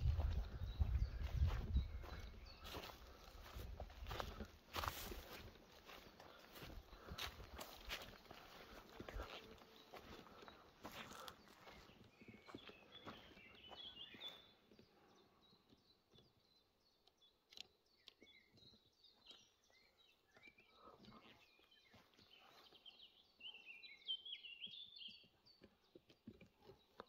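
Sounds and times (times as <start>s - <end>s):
soft footstep scuffs: 0.0s - 14.4s
faint songbirds chirping: 0.0s - 27.0s.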